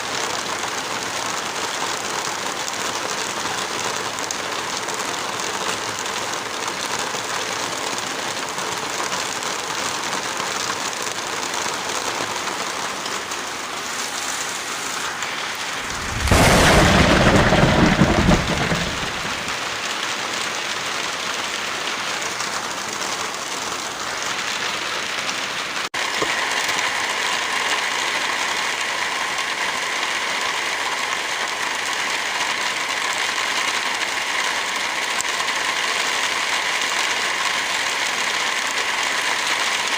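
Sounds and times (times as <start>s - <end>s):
steady rain falling: 0.0s - 39.9s
thunder rumbling: 15.2s - 19.8s.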